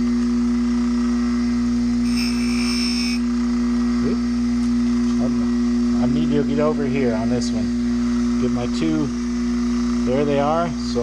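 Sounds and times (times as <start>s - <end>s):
grinding wheel motor hum: 0.0s - 11.0s
high-pitched whine: 2.0s - 3.4s.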